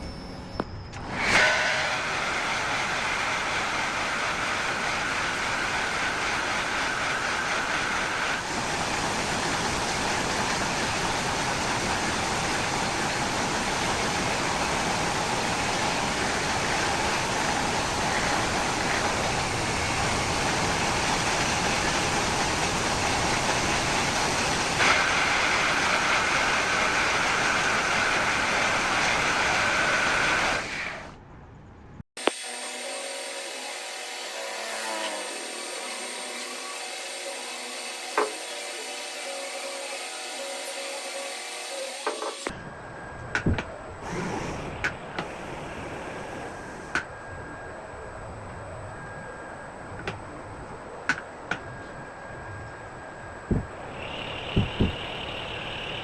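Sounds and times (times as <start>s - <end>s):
power tool motor running: 1.0s - 31.2s, 44.0s - 47.0s, 53.5s - 56.0s
high whine: 42.5s - 56.0s.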